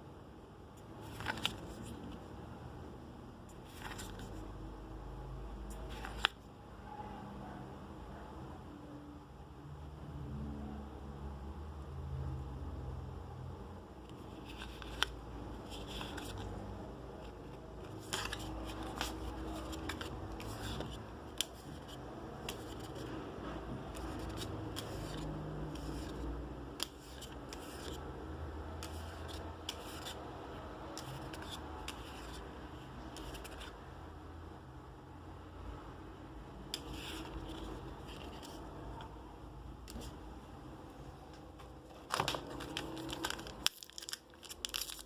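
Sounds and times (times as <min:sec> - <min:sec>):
card packaging rustling: 0:17.2 - 0:23.0, 0:41.9 - 0:45.0.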